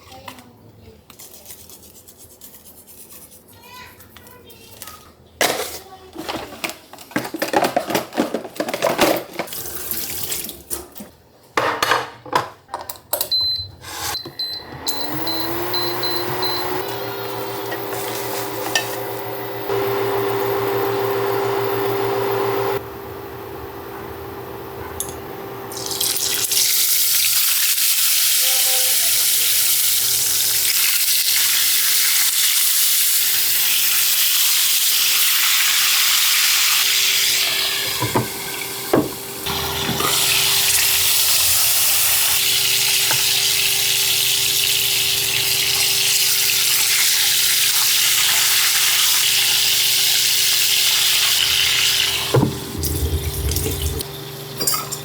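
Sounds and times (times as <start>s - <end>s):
utensils and dishes clattering: 4.7s - 13.3s, 17.4s - 19.5s, 37.3s - 47.6s, 51.2s - 55.0s
appliance motor humming: 14.2s - 26.6s, 37.3s - 48.3s, 48.9s - 55.0s.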